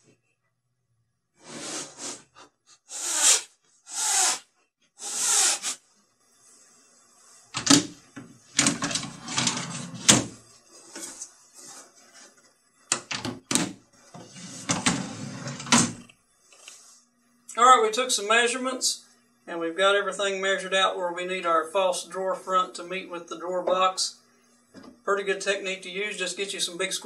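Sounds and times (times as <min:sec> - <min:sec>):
drawer clicks and knocks: 0:07.6 - 0:10.4, 0:12.9 - 0:16.0
drawer rolling on metal slides: 0:08.6 - 0:10.4, 0:14.2 - 0:16.0.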